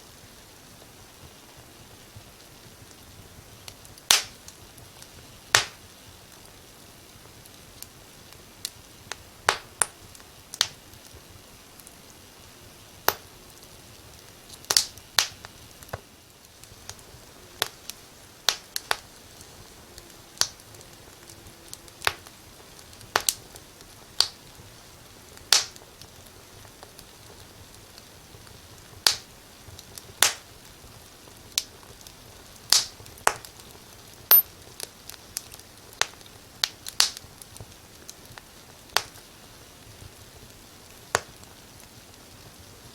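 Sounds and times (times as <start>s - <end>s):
faint steady hiss: 0.0s - 42.9s
wood fire crackling: 0.0s - 42.9s.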